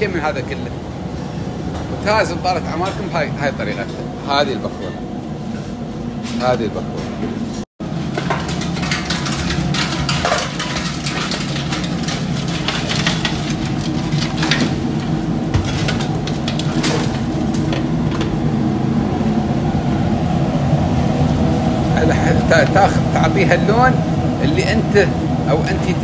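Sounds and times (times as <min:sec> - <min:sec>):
steady hum: 0:00.0 - 0:26.0
fritters clattering into steel bowl: 0:08.0 - 0:18.3.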